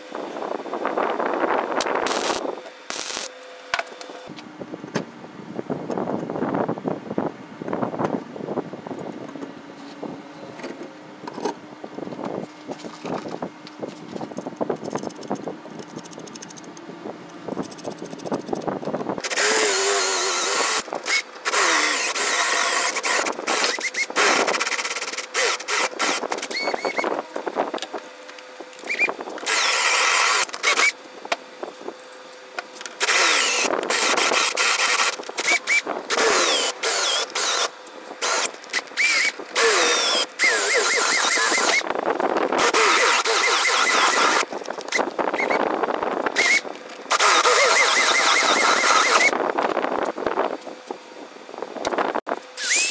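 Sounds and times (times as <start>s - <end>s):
machine noise in short bursts: 19.2s - 27.3s, 28.8s - 31.0s, 33.0s - 41.9s, 42.6s - 45.6s, 46.3s - 49.4s, 52.5s - 52.9s
high squeals: 24.8s - 27.2s, 28.8s - 31.0s, 33.0s - 41.9s, 46.4s - 49.4s, 52.6s - 52.9s.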